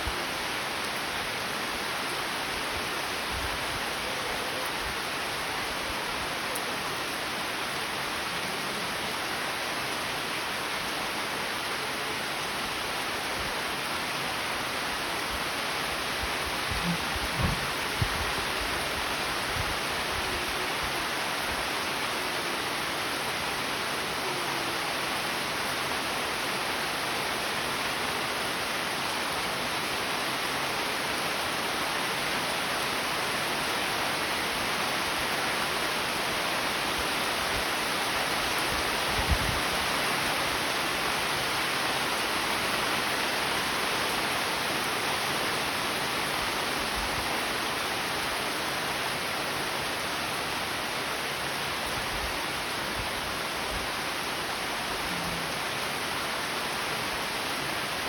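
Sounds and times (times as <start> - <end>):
steady rain hiss: 0.0 - 58.0
low thuds: 16.8 - 18.1.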